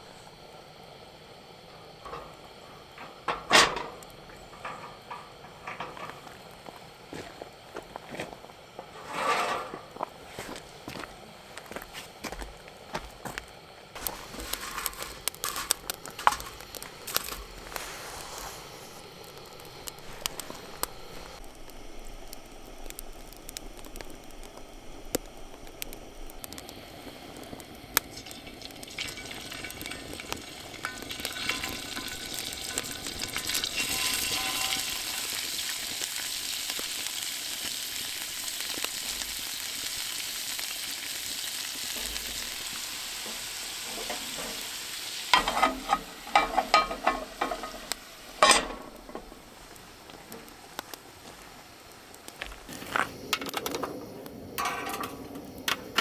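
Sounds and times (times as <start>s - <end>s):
food sizzling: 0.0s - 56.0s
cookware clicking and knocking: 45.4s - 49.0s.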